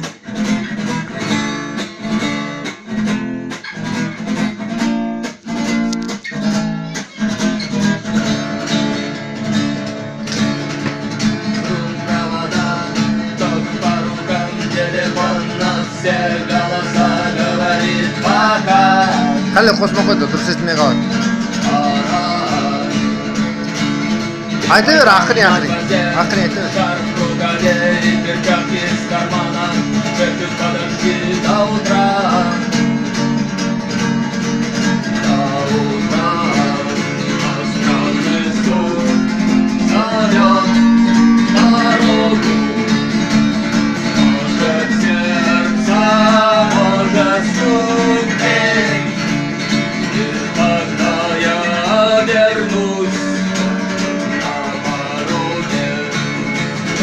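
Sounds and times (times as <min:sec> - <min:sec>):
strummed guitar: 0:00.0 - 0:57.0
person singing: 0:11.5 - 0:23.5, 0:24.6 - 0:32.9, 0:35.1 - 0:49.4, 0:50.0 - 0:57.0.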